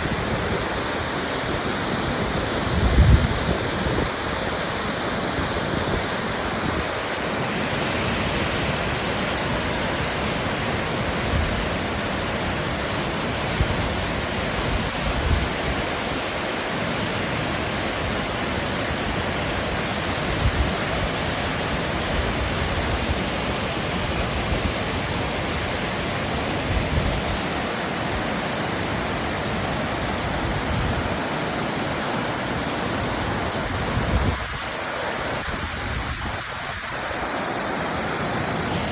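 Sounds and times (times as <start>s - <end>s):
wind rumble on microphone: 0.0s - 4.6s, 13.4s - 16.2s, 19.1s - 27.7s, 33.0s - 37.2s
waterfall rushing: 0.0s - 38.9s.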